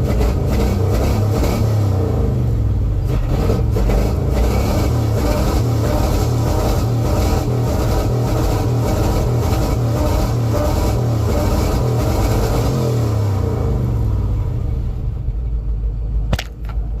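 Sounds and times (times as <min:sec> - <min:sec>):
car engine revving: 0:00.0 - 0:15.2
sharp click: 0:16.3 - 0:16.8.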